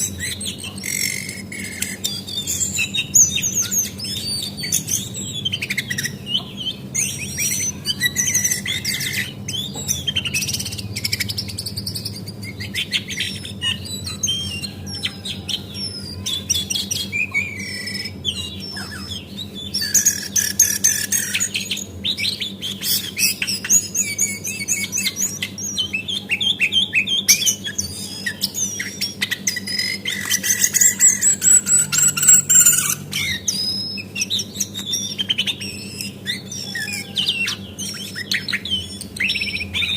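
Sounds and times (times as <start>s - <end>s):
bird chirping and trilling: 0.0s - 39.9s
steady low hum: 0.0s - 39.9s.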